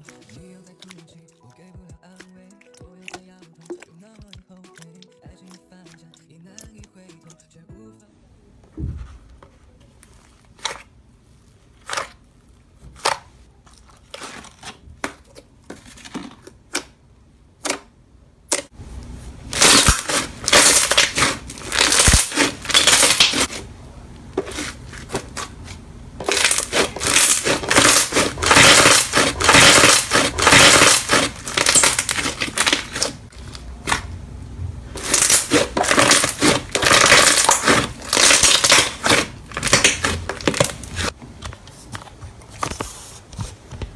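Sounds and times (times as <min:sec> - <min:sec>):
slime popping and crackling: 0:19.5 - 0:23.5, 0:26.2 - 0:34.0, 0:35.0 - 0:41.2.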